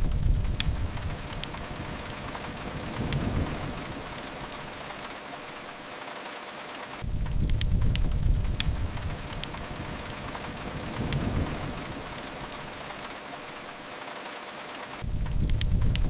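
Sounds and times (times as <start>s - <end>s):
deep low rumble: 0.0s - 4.8s, 7.0s - 12.8s, 15.0s - 16.0s
fire crackling and popping: 0.0s - 16.0s
steady rain: 0.0s - 16.0s.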